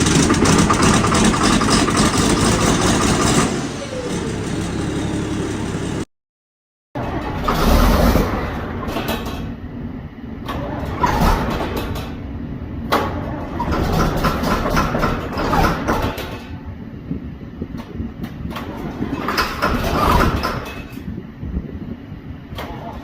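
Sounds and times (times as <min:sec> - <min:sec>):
diesel engine starting: 0:00.0 - 0:06.1, 0:07.0 - 0:12.2, 0:12.8 - 0:16.8, 0:18.5 - 0:21.0
engine knocks and rattles: 0:00.0 - 0:06.1, 0:12.8 - 0:23.0.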